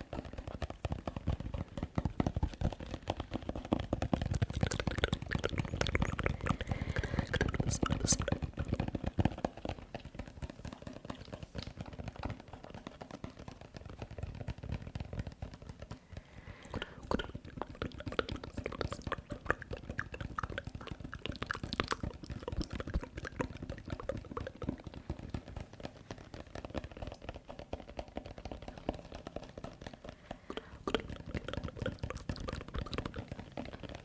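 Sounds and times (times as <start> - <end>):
wet mouth clicks and smacks: 3.6 - 9.0, 16.2 - 34.0.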